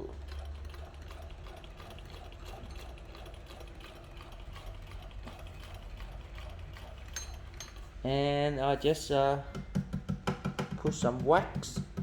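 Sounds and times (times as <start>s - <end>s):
sewing machine ticking: 0.0s - 7.6s.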